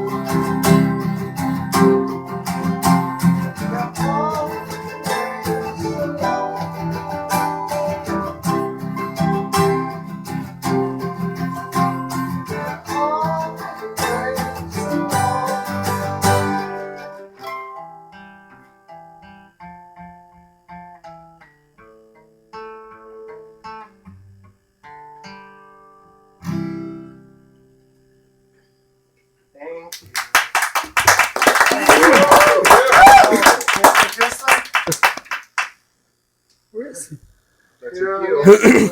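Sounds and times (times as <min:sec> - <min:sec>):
guitar strumming chords: 0:00.0 - 0:24.2.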